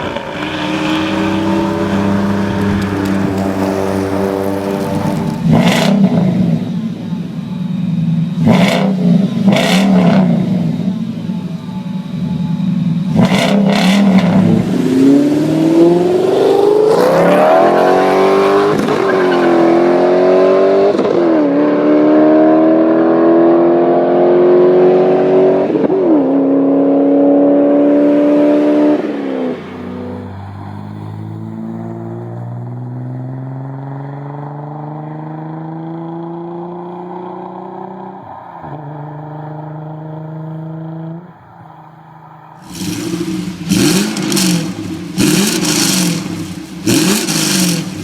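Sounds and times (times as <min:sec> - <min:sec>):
car engine revving through gears: 0:00.0 - 0:06.9, 0:08.3 - 0:11.7, 0:13.0 - 0:41.2, 0:42.6 - 0:48.0
exhaust cracks: 0:00.0 - 0:07.2, 0:13.0 - 0:19.8, 0:42.6 - 0:48.0.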